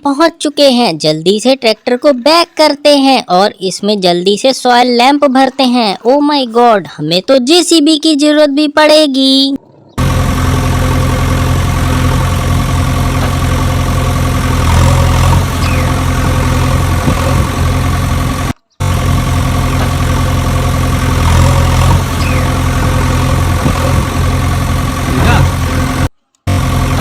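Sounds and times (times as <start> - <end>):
tractor engine idling: 9.8 - 27.0.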